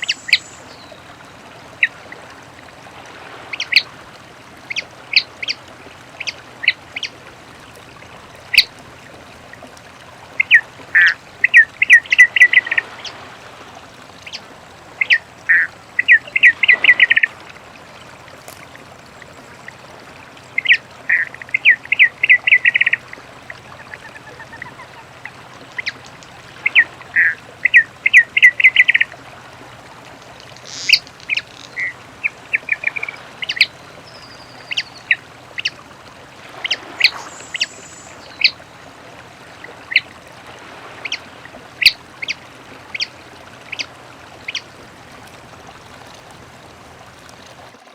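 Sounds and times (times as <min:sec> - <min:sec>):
bird song of quick repeated notes: 0:00.0 - 0:01.0, 0:30.4 - 0:35.7, 0:36.6 - 0:38.6.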